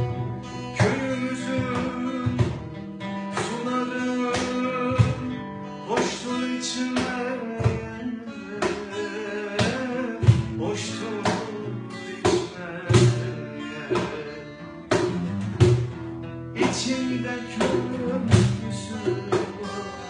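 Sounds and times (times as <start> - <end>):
oud and guitar plucked melody: 0.0 - 20.0
hand drum strikes: 0.8 - 2.8, 3.4 - 5.3, 9.6 - 11.6, 12.2 - 13.3, 14.9 - 19.9.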